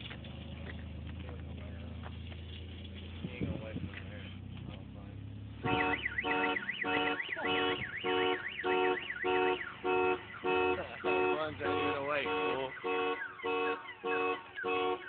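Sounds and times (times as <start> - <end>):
car alarm siren beeping and warbling: 5.6 - 15.0.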